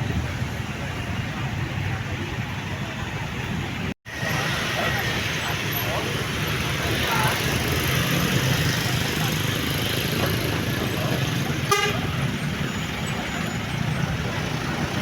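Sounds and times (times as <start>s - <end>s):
road noise: 0.0s - 15.0s
vehicle horn toot: 11.6s - 12.1s.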